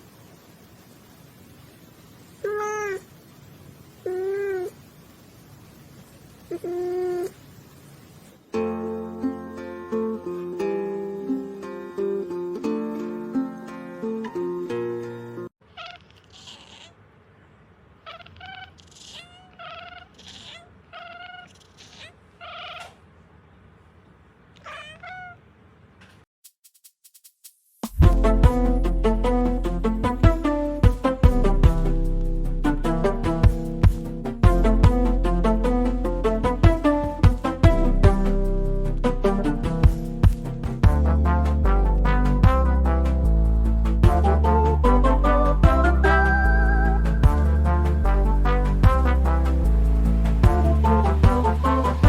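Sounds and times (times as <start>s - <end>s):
cat meowing: 2.4s - 3.1s, 4.0s - 4.8s, 6.5s - 7.4s, 15.7s - 17.0s, 18.0s - 23.0s, 24.6s - 25.5s
guitar music: 8.5s - 15.5s, 28.0s - 43.1s, 43.7s - 52.0s.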